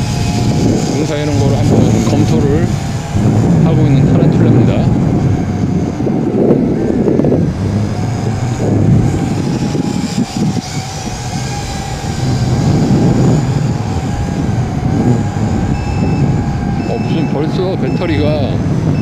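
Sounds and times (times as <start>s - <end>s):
drone propellers whining: 0.0s - 19.0s
wind buffeting microphone: 0.0s - 19.0s
short electronic beeps: 15.7s - 19.0s.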